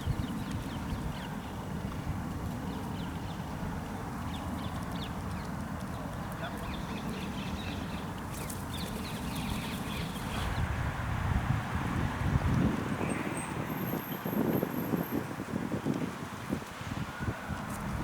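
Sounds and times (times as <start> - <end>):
small birds chirping: 4.3 - 10.6.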